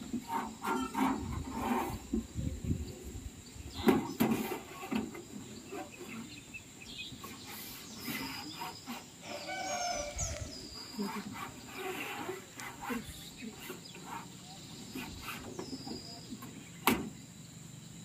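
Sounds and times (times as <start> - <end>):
bird calling: 3.6 - 16.9.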